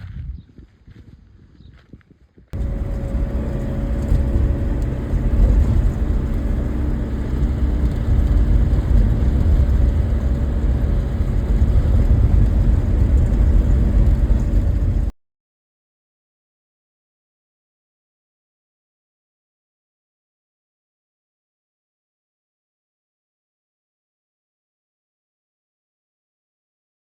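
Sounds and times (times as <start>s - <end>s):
motor vehicle engine drone: 2.6s - 15.1s.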